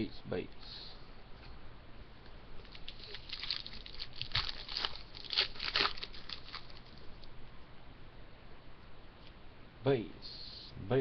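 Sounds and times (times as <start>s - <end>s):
wrapper crinkling and tearing: 2.6s - 7.2s.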